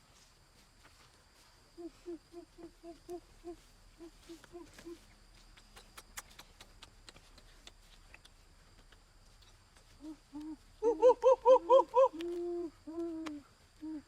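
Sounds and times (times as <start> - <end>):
person making hoot-like sounds: 10.0 - 14.0
faint clicks: 12.2 - 13.4.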